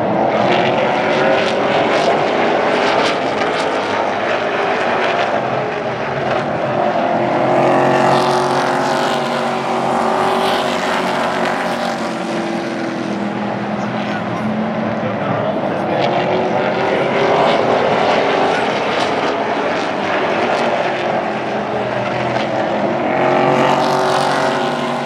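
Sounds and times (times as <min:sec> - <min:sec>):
race truck engines passing: 0:00.0 - 0:25.0.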